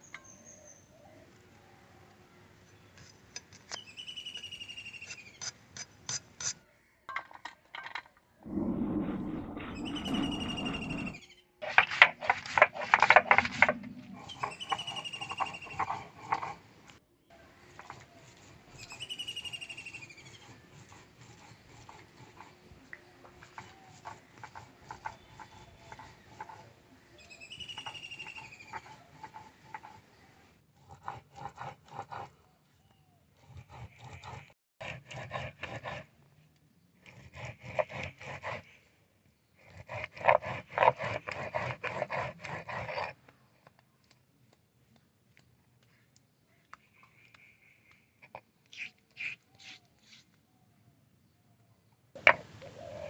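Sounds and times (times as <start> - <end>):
animal calling: 8.4 - 11.4, 13.3 - 16.6
rough scraping: 8.4 - 16.7.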